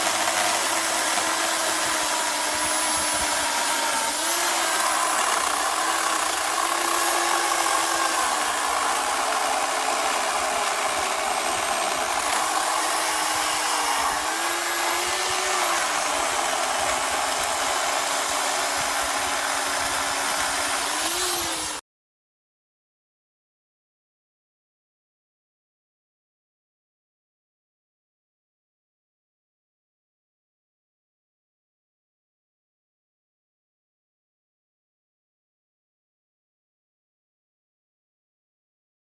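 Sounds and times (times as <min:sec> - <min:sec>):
electric chainsaw motor whine: 0:00.0 - 0:21.8.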